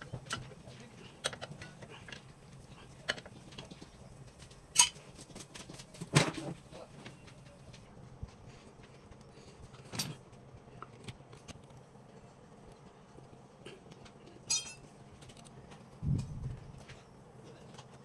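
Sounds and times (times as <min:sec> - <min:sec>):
hand tools clinking: 0:14.4 - 0:14.9.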